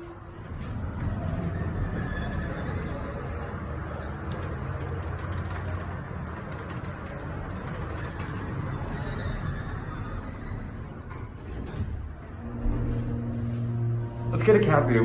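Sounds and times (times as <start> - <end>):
elevator car rumble: 0.0 - 15.0
rapid light clicking and rattling: 3.9 - 8.7.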